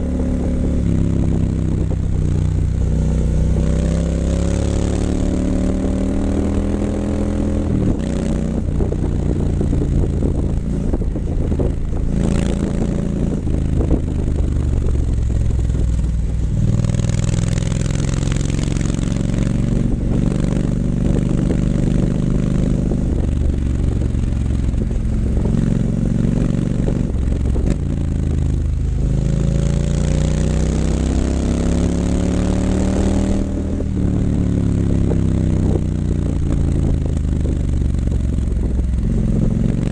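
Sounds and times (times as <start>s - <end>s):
motorcycle engine exhaust note: 0.0s - 39.9s.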